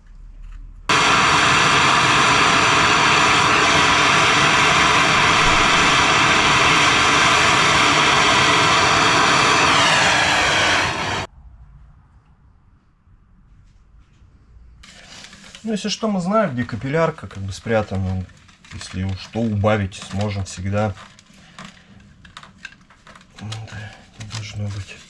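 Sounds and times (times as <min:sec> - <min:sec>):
pressurised gas hissing through tubing: 0:00.9 - 0:11.3.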